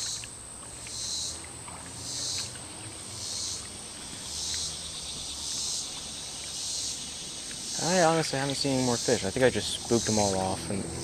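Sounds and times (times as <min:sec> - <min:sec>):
insects whining: 0:00.0 - 0:11.0
pulsing insect buzzing call: 0:00.9 - 0:01.4, 0:03.2 - 0:08.1.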